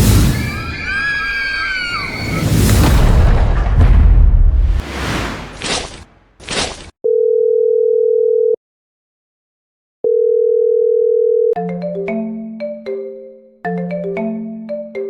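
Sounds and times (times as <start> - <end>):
loud boom: 0.0 - 1.1, 1.7 - 6.5
looping mallet music tune: 11.6 - 15.0.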